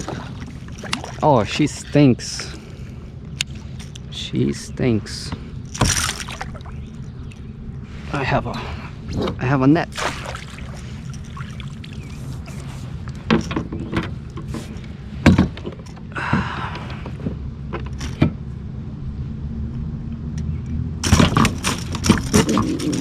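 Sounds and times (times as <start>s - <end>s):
steady low hum: 0.0s - 17.7s
knocks and rattles on a kayak: 5.6s - 7.5s, 9.2s - 16.5s, 21.0s - 23.0s.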